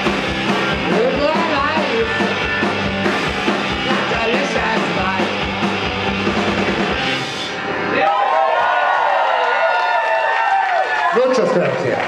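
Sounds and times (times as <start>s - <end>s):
rock band playing: 0.0s - 7.9s.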